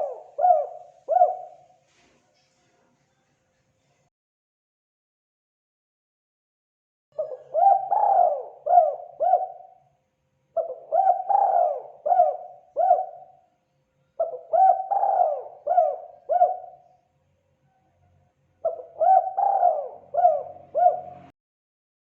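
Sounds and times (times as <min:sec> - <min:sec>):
dove cooing: 0:00.0 - 0:01.8, 0:07.2 - 0:09.8, 0:10.6 - 0:13.4, 0:14.2 - 0:16.9, 0:18.6 - 0:21.3.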